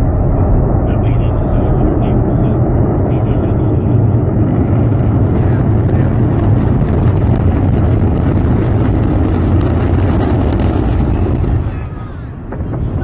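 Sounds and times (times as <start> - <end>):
rocket engines roaring: 0.0 - 13.0.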